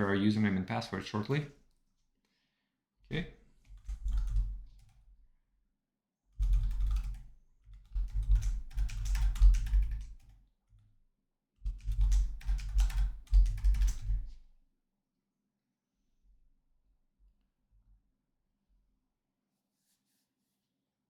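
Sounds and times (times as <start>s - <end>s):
typing on a computer keyboard: 3.7s - 5.0s, 6.4s - 10.4s, 11.6s - 14.3s.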